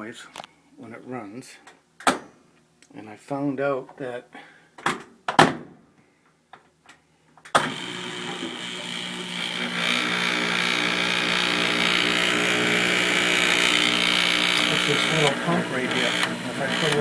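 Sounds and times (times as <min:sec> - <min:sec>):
washer drain pump buzzing hum: 0:07.6 - 0:17.0.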